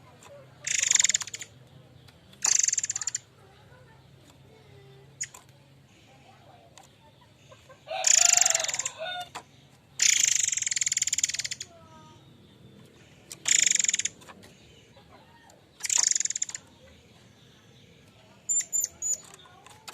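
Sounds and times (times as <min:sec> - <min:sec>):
bird harsh buzzing calls: 0:00.6 - 0:01.6, 0:02.3 - 0:03.9, 0:07.4 - 0:15.0, 0:15.7 - 0:19.6.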